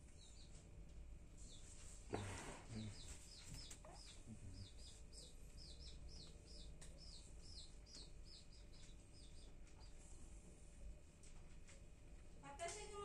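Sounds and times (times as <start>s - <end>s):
small bird chirping: 0.0s - 0.6s, 1.4s - 1.8s, 2.7s - 10.0s.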